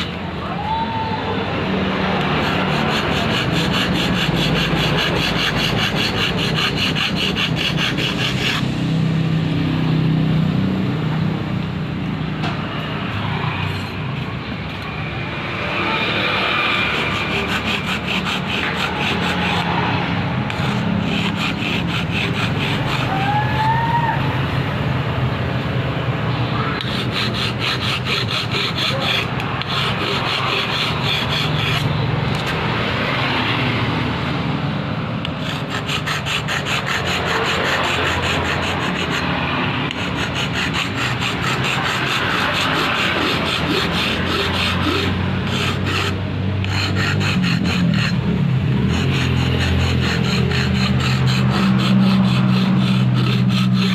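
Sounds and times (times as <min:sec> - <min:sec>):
hand tool rasping: 0:02.1 - 0:08.7, 0:13.0 - 0:14.8, 0:15.4 - 0:23.7, 0:26.7 - 0:33.4, 0:35.2 - 0:53.9.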